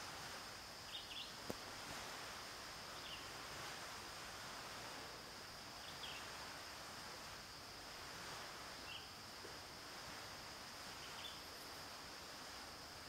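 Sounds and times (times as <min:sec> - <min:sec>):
faint bird chirps: 0:00.9 - 0:01.4, 0:11.0 - 0:11.5.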